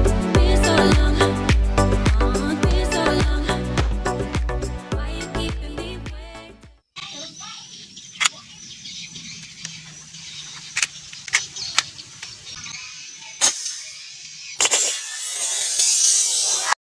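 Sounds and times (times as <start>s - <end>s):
sharp clicks: 7.9s - 16.8s.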